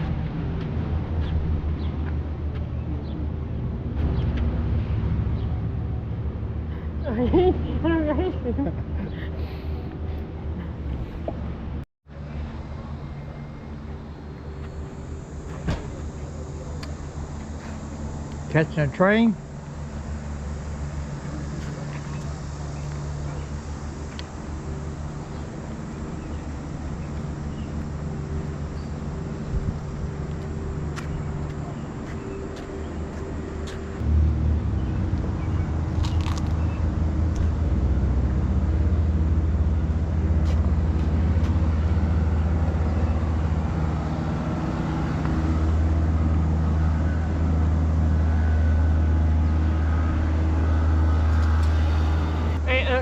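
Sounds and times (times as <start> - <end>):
diesel locomotive engine drone: 0.0 - 53.0.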